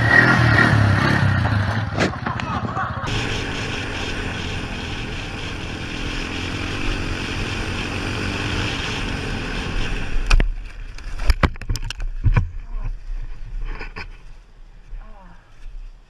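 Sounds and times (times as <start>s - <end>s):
quad bike engine at speed: 0.0s - 11.8s.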